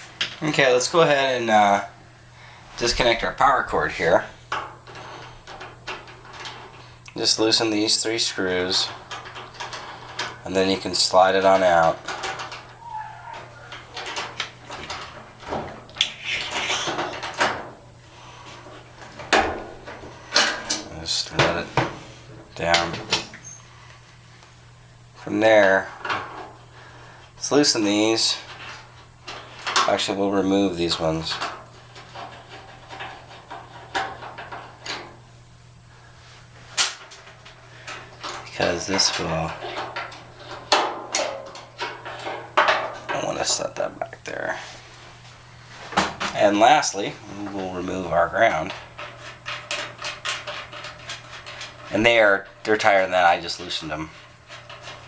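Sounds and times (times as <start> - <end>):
knocks clicks and scraping: 2.8 - 23.6, 45.8 - 55.0
short squeak: 16.1 - 17.0, 23.3 - 23.7.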